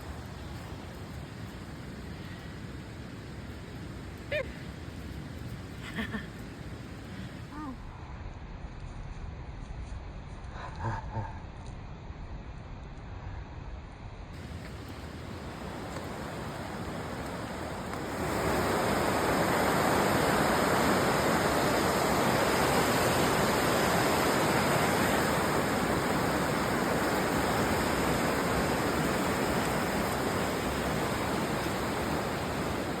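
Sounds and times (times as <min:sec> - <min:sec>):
rushing river water: 0:00.0 - 0:07.5, 0:14.4 - 0:33.0.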